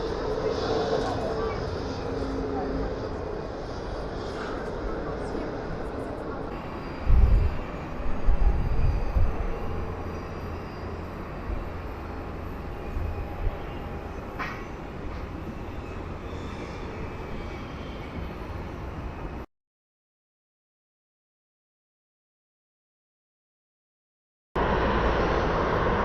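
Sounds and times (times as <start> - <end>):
wind buffeting microphone: 0.0 - 17.4
distant jet engines rumbling: 0.0 - 19.4, 24.6 - 26.0.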